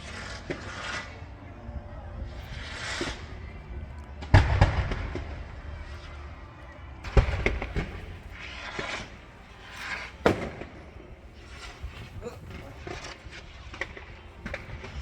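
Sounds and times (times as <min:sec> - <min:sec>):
fireworks crackling: 0:00.0 - 0:01.3, 0:04.2 - 0:15.0
fireworks bangs echoing: 0:07.1 - 0:15.0.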